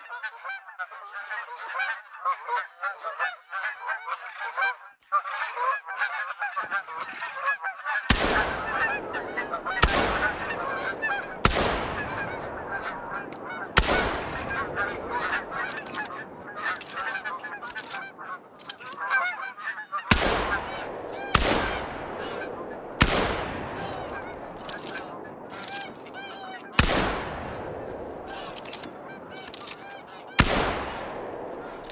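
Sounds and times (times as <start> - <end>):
geese honking: 0.0 - 31.9
shotgun shots: 8.1 - 19.0, 20.1 - 31.9.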